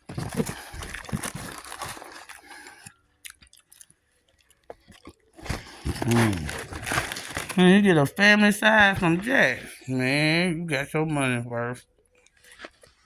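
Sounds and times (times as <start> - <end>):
crunchy chewing of food: 0.0 - 7.6, 11.8 - 13.0
person humming: 5.8 - 6.8.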